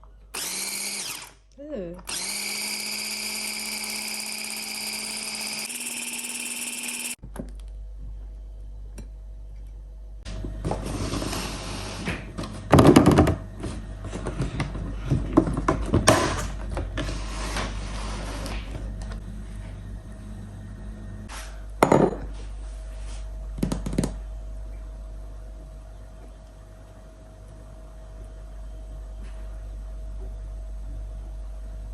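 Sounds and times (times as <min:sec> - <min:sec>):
low steady hum: 0:06.8 - 0:11.3, 0:17.9 - 0:31.9.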